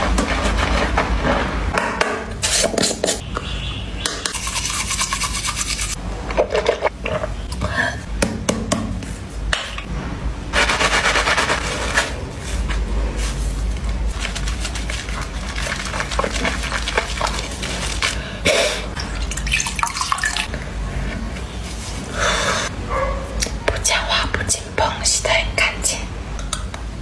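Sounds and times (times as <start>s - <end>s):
water running and splashing: 14.2s - 18.2s.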